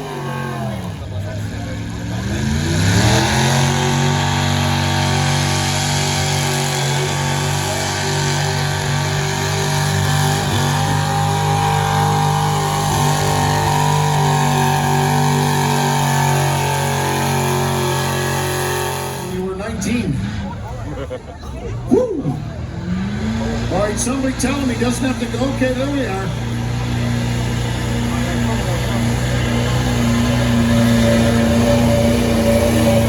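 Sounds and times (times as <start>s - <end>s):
truck engine revving under load: 0.0s - 33.0s.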